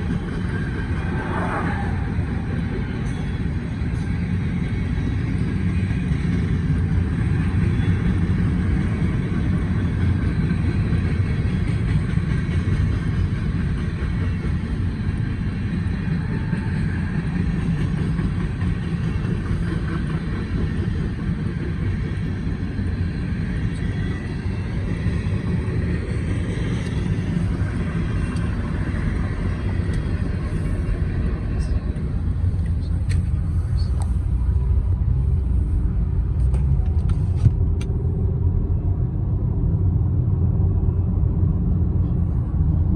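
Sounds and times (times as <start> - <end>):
train wheels rumbling on rails: 0.0 - 42.9.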